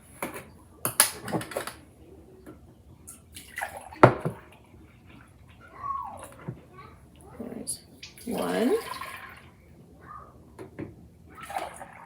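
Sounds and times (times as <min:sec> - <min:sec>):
milk pouring into bowl: 0:08.0 - 0:09.6.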